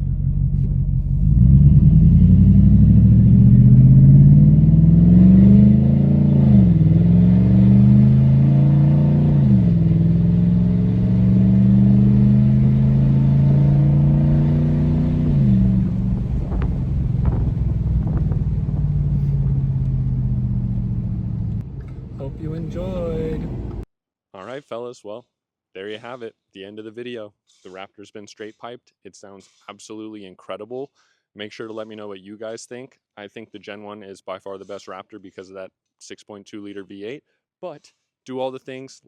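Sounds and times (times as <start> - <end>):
truck engine accelerating through gears: 0.0 - 23.8.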